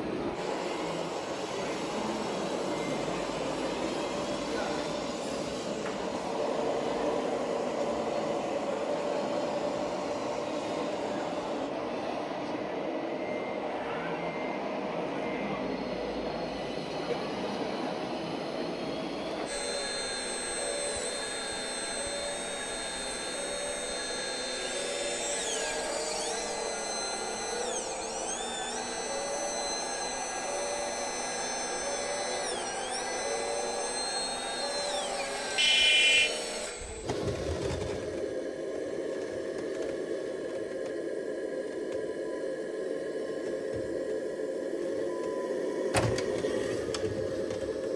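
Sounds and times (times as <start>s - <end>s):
small electric motors whining: 0.0s - 11.8s, 15.7s - 42.2s
short loud tone: 35.6s - 36.8s.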